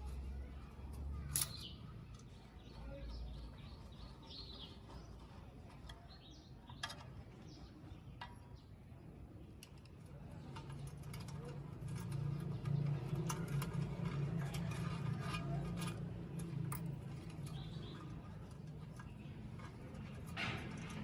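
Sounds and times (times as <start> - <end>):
low steady background hum: 0.0 - 21.0
birds chirping: 1.1 - 9.5, 17.1 - 20.9.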